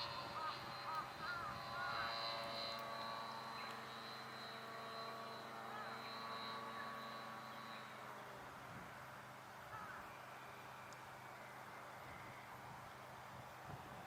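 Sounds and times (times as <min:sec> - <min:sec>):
distant model airplane motor drone: 0:00.0 - 0:14.0.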